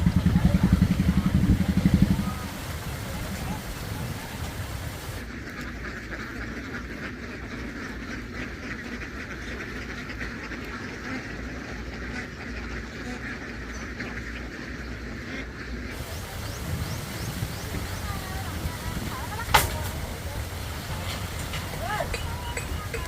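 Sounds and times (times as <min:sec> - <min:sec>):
ducks quacking: 0:00.0 - 0:23.0.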